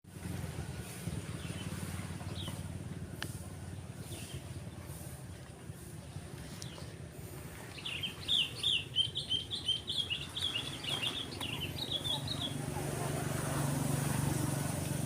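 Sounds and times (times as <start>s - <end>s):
small bird chirping: 7.7s - 12.8s.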